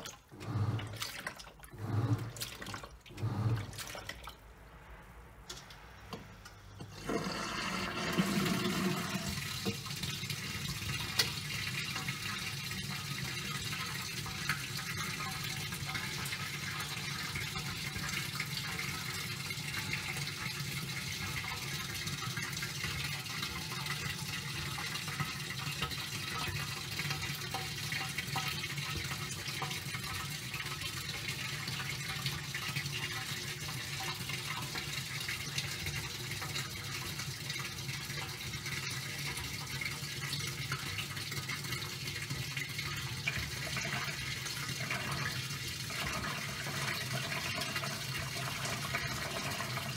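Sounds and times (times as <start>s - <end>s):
washing machine water sloshing: 0.0s - 4.4s, 6.8s - 49.9s
washing machine hum: 0.0s - 4.7s, 5.4s - 49.9s.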